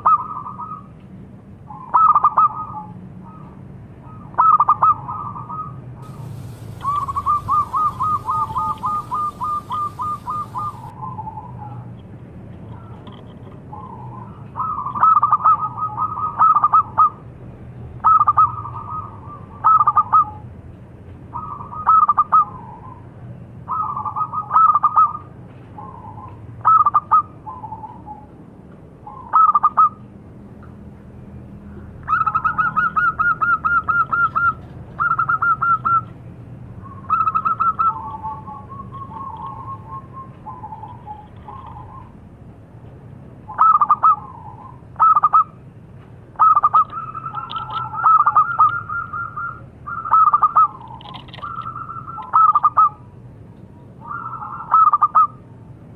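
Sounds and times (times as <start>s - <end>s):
dove cooing: 4.4s - 11.8s, 36.9s - 42.1s, 46.4s - 53.0s.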